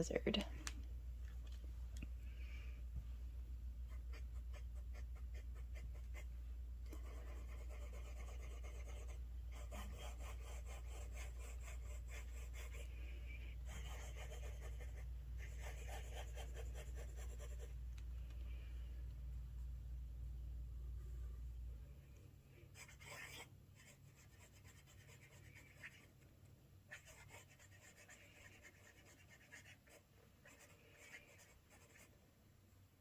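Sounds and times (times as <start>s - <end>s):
low steady hum: 0.0s - 33.0s
fountain pen scratching on paper: 3.9s - 6.3s, 6.9s - 12.9s, 13.6s - 17.7s, 22.7s - 26.1s, 26.9s - 32.1s.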